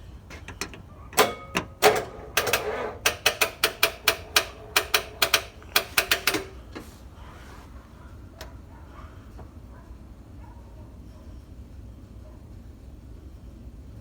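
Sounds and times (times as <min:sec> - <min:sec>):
starter solenoid clicking: 0:00.2 - 0:06.9.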